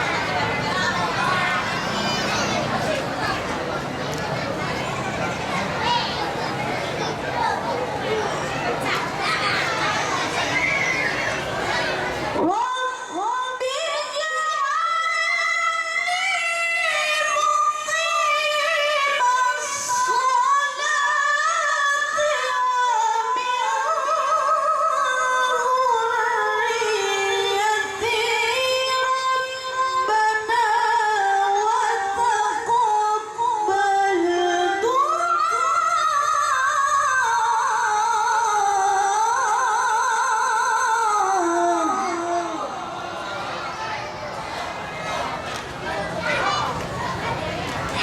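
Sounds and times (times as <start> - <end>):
woman chanting melodically: 12.4 - 43.4.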